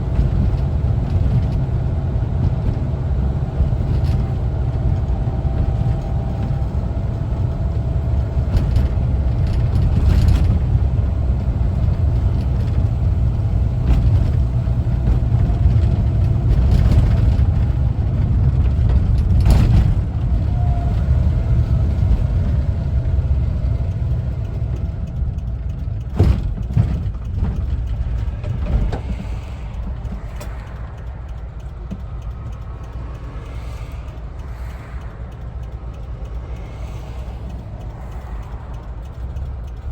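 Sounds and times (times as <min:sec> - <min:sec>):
knocks and rattles: 0:00.0 - 0:30.8
van engine driving: 0:00.0 - 0:39.9.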